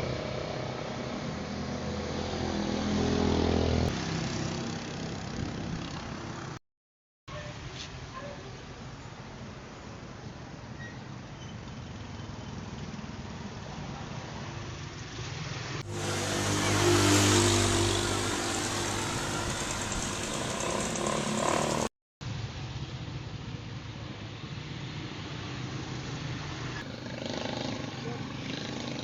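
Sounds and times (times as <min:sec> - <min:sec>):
faint rising engine: 0:15.8 - 0:21.9
vehicle engine passing: 0:15.8 - 0:21.9.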